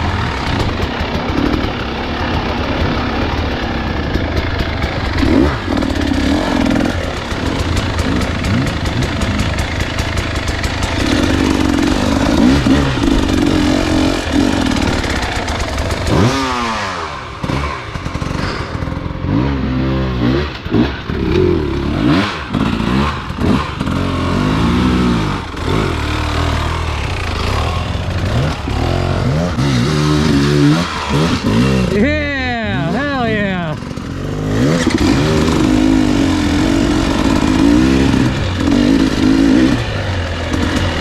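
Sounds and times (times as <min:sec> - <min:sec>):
clattering from terrain: 0:00.0 - 0:19.5
dirt bike engine revving: 0:00.0 - 0:41.0.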